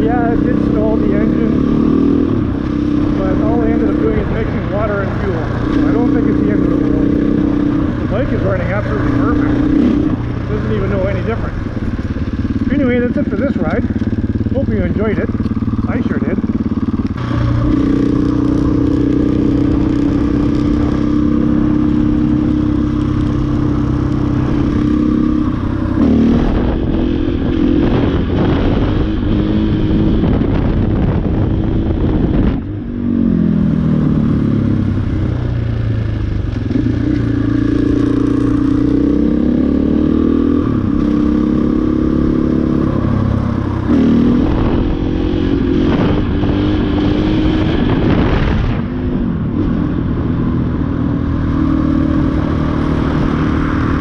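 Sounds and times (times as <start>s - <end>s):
rider speaking: 0.0s - 2.1s, 2.8s - 25.3s
motorcycle engine: 0.0s - 54.0s.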